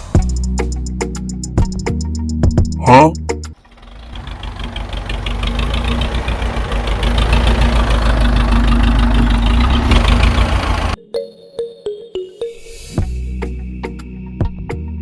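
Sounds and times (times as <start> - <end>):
engine knocking beat: 3.6 - 11.0.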